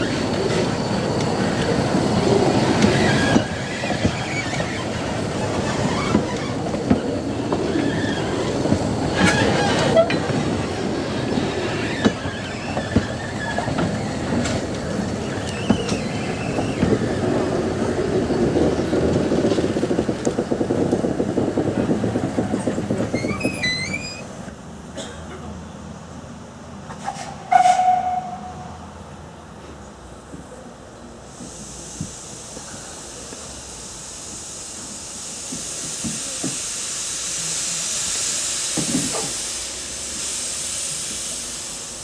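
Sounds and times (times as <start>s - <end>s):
wheel flanges squealing: 0.0s - 19.0s, 22.4s - 24.4s
train wheels clattering on rails: 0.0s - 23.7s, 34.8s - 36.7s, 38.1s - 39.4s.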